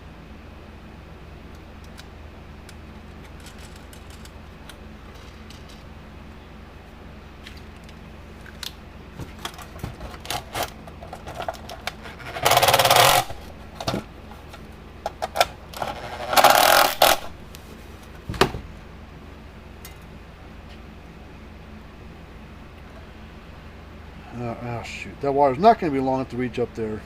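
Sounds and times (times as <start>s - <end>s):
power tool running nuts down: 12.2s - 13.4s, 15.8s - 17.3s.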